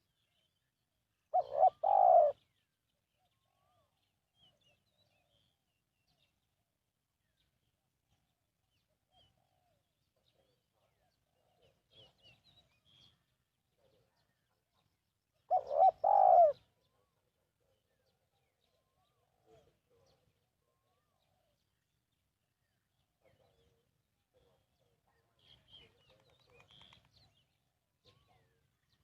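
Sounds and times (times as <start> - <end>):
faint chirps of small birds: 0.0 - 29.0
dove cooing: 1.3 - 2.4, 15.5 - 16.6.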